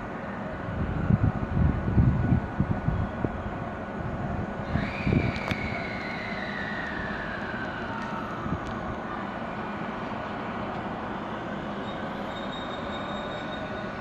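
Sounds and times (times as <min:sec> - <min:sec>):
electric train rumbling: 0:00.0 - 0:14.0
train motor whine: 0:04.6 - 0:14.0.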